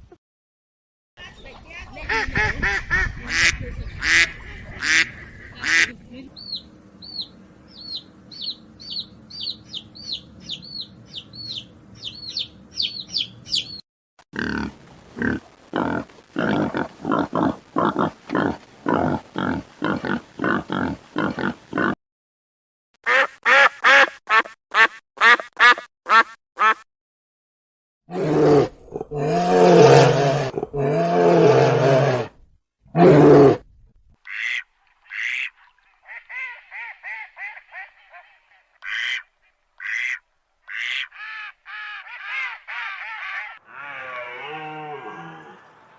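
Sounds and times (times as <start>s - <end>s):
repeated animal calls: 1.2s - 13.8s, 36.2s - 45.9s
rapid high animal chirping: 3.8s - 13.8s
deep animal calls: 43.2s - 45.9s.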